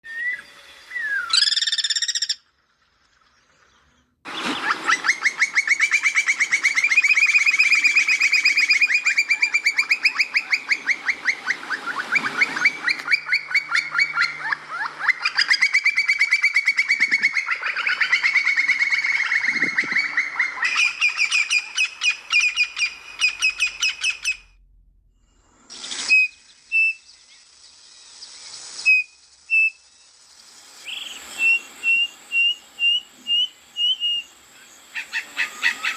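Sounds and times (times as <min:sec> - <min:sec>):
songbird trilling: 0:00.1 - 0:02.4, 0:05.1 - 0:24.4, 0:30.8 - 0:35.9.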